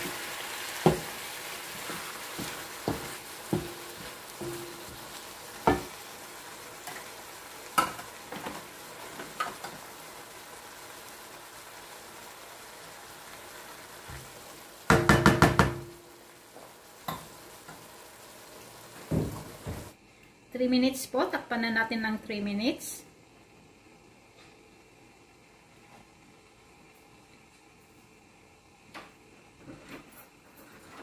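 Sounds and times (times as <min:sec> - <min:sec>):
food sizzling in a wok: 0:00.0 - 0:20.0
wooden spatula knocking on pan: 0:00.8 - 0:01.2, 0:02.3 - 0:06.0, 0:14.9 - 0:16.0, 0:19.1 - 0:19.9.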